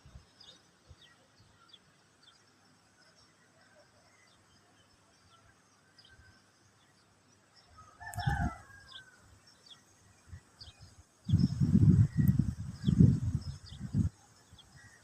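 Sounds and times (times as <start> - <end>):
small birds chirping: 0.0 - 15.0
rooster crowing: 7.8 - 9.2.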